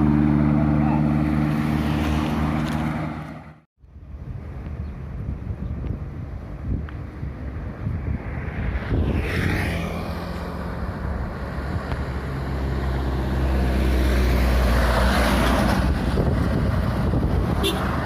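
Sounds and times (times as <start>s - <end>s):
heavy vehicle engine passing: 0.0s - 3.6s
road and tyre noise: 0.0s - 18.0s.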